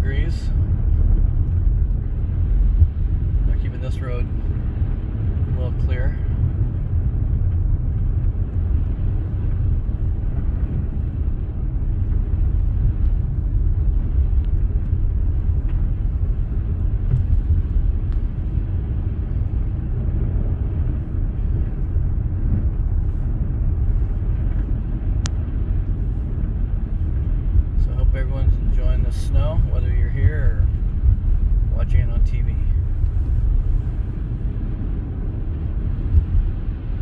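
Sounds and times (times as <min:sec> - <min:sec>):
car driving on snowy road: 0:00.0 - 0:37.0
faint tick: 0:23.8 - 0:27.8.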